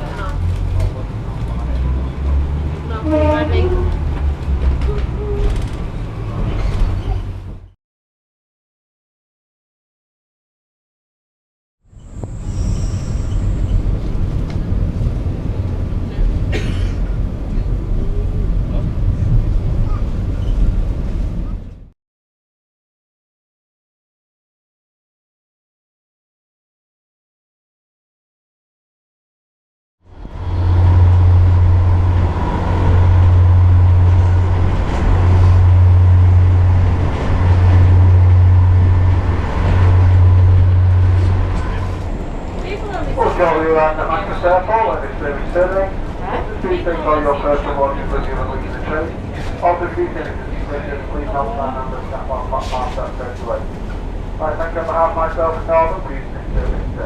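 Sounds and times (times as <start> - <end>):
train rumbling: 0.0 - 7.8, 11.9 - 21.9, 30.0 - 57.0.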